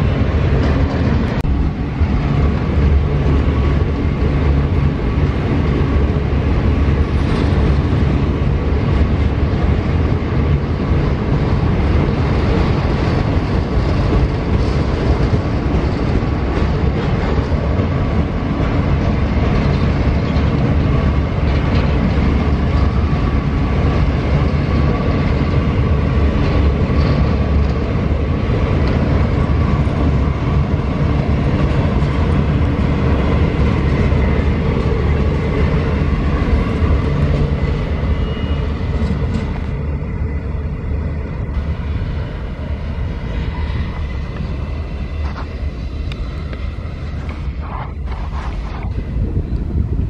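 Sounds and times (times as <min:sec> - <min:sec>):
freight train rumbling past: 0:00.0 - 0:50.0
thin steady squeal: 0:36.5 - 0:40.7.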